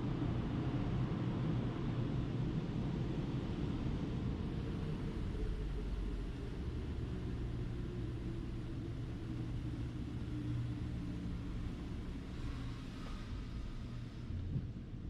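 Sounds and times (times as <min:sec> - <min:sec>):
faint engine-like hum: 0:00.0 - 0:15.0.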